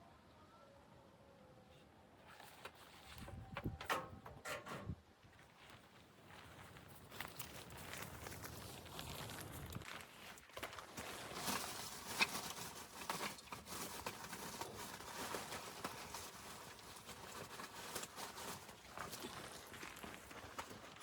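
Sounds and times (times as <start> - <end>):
footsteps crunching in snow: 5.2 - 21.0.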